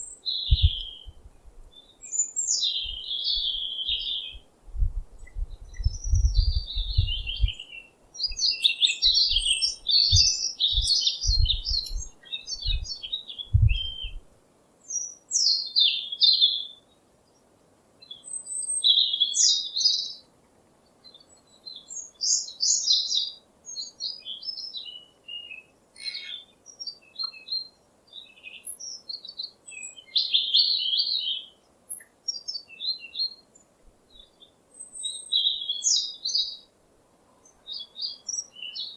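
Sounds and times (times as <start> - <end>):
small birds chirping: 0.0 - 38.9
low thumps: 0.5 - 1.7, 4.7 - 7.6, 10.1 - 12.1, 13.5 - 14.2.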